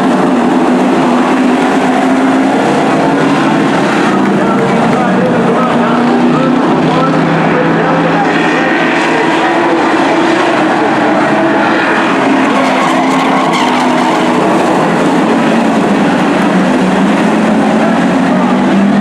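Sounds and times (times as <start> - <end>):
race truck engines passing: 0.0 - 19.0.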